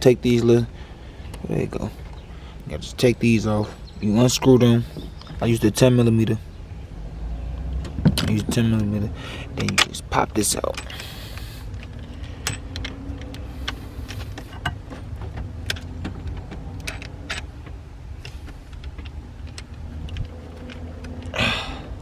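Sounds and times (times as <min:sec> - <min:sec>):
small metallic clicks and knocks: 0:07.6 - 0:09.0, 0:09.6 - 0:22.0.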